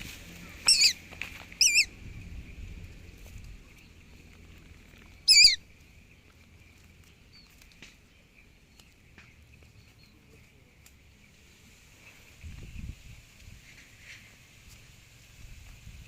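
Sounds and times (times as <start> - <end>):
loud wavering bird squawk: 0.6 - 1.0, 1.6 - 1.9, 5.3 - 5.6
faint chirps and ticks: 0.6 - 15.0.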